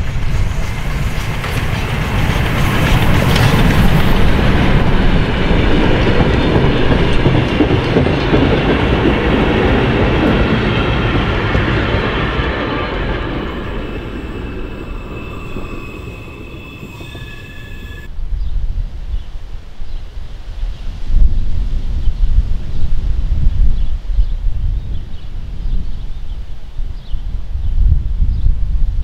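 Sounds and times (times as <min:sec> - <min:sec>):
train wheels rumbling on track: 0:00.0 - 0:18.1
faint high tones: 0:12.6 - 0:18.1.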